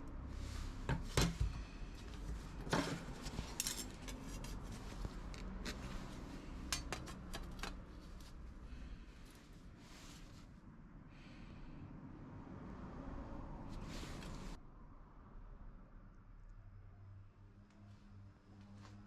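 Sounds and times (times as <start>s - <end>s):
sheet metal parts clinking: 2.8s - 4.3s.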